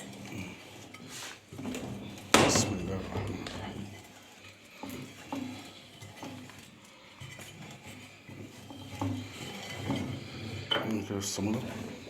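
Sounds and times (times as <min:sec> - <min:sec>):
knocks: 0:02.4 - 0:03.8.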